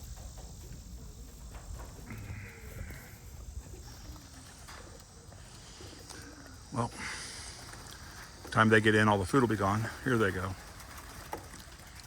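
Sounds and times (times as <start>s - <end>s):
pigeons moving about: 0.0s - 12.0s.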